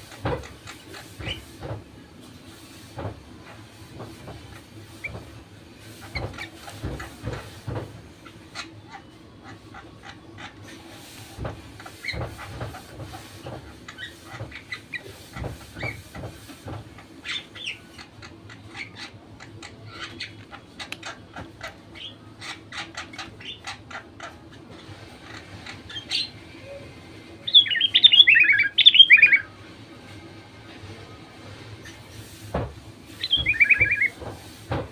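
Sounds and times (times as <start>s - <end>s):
bird chirping: 27.5s - 29.5s, 33.2s - 34.2s.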